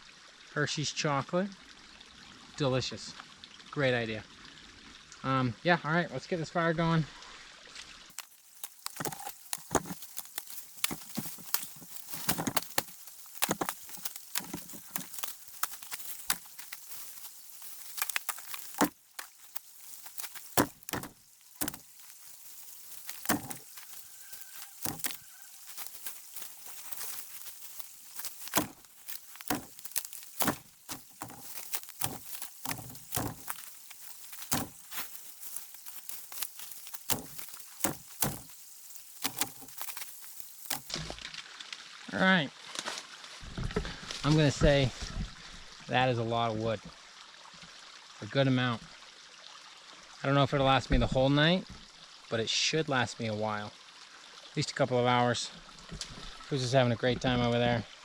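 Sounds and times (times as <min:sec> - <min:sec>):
footsteps: 0:08.1 - 0:41.0
dead wood cracking: 0:08.1 - 0:41.4.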